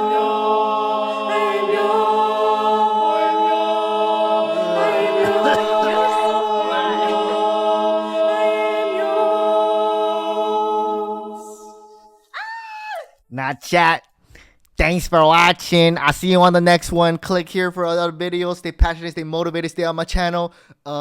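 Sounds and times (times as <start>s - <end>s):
group singing a cappella: 0.0s - 12.3s.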